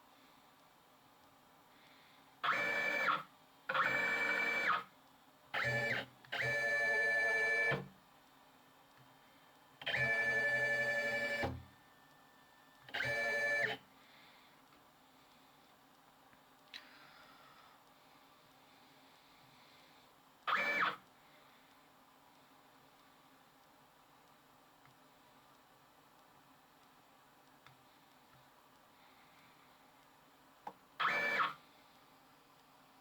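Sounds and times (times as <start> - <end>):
milling machine motors whining: 9.9 - 11.6.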